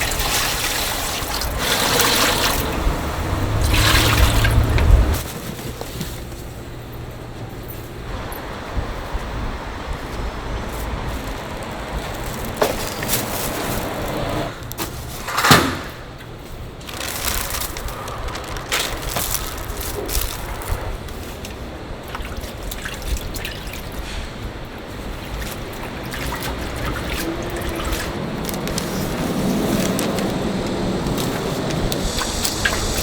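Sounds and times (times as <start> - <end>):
liquid pouring and splashing: 0.0 - 5.0, 16.9 - 33.0.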